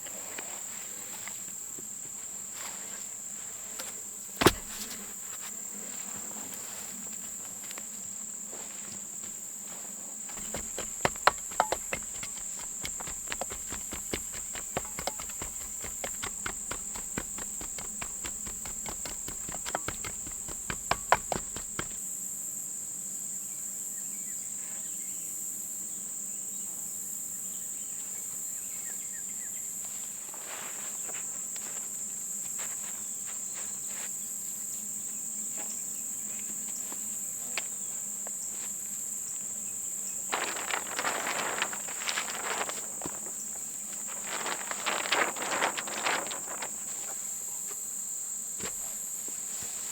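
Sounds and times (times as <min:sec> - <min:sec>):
irregular knocks and clicks: 0:04.4 - 0:04.9, 0:10.3 - 0:22.0.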